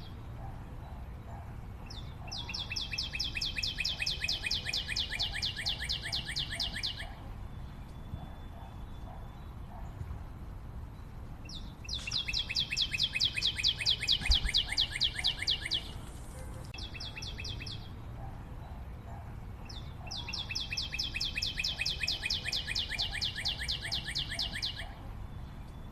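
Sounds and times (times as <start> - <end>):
bird trilling: 1.9 - 9.9, 11.5 - 17.9, 19.7 - 25.0.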